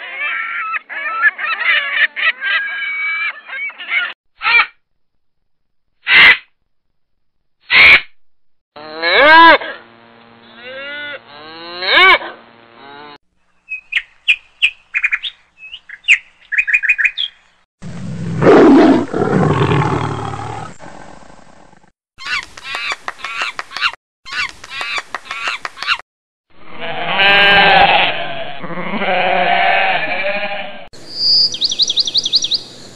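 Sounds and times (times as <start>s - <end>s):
cow mooing: 8.8s - 9.7s, 10.6s - 13.2s.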